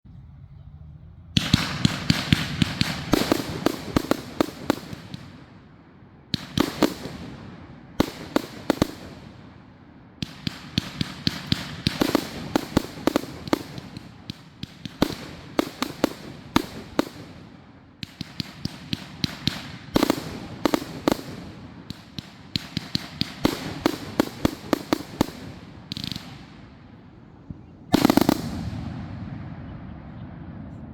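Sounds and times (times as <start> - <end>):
firework cake firing rapid bangs: 1.4 - 5.5, 6.4 - 9.6, 10.2 - 26.8, 27.9 - 29.0.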